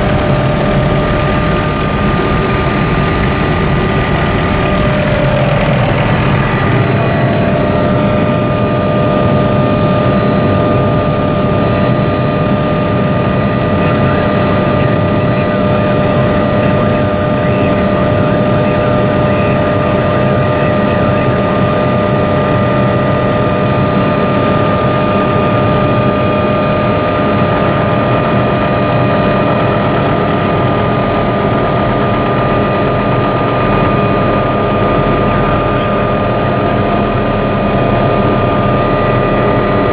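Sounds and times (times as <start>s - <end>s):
helicopter engine whine: 0.0s - 39.9s
low rotor rumble: 0.0s - 39.9s.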